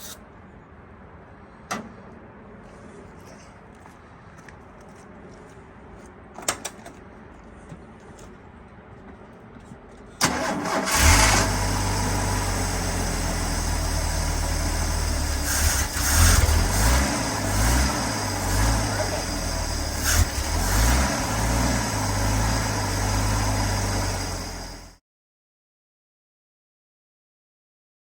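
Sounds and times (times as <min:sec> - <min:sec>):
engine cranking and idling: 0:10.2 - 0:24.9.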